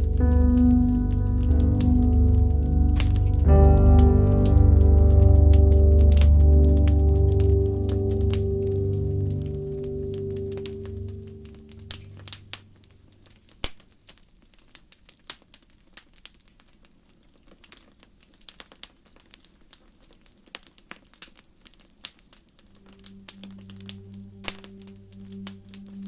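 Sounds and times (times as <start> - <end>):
soft piano: 0.0 - 12.9, 22.7 - 26.0
wood fire crackling and popping: 0.0 - 26.0.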